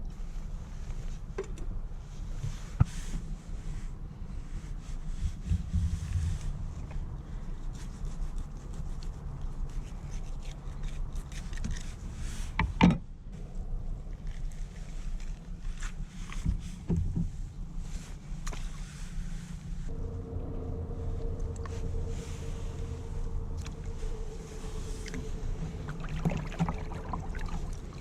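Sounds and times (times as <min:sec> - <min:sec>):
low rumble: 0:04.5 - 0:07.8, 0:13.2 - 0:28.0.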